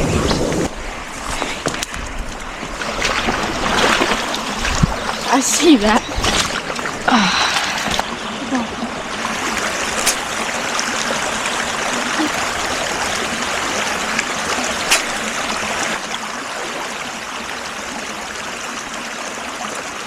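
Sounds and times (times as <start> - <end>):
creek water running: 0.0 - 20.0.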